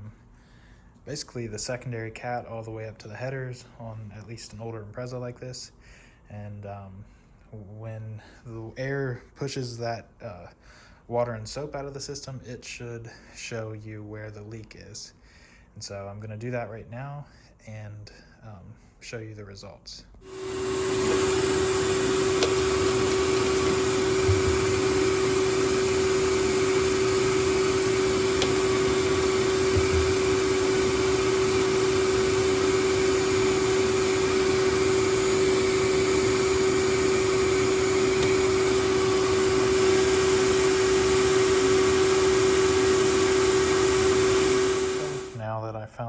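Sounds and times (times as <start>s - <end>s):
vacuum cleaner blowing air: 20.2s - 45.4s.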